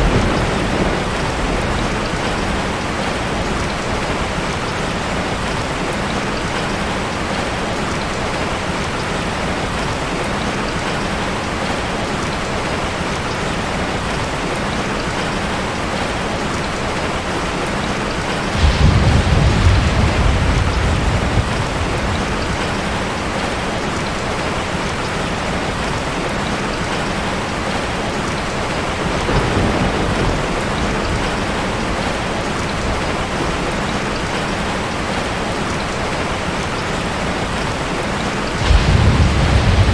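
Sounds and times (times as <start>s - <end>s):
deep rumble: 38.6s - 39.9s.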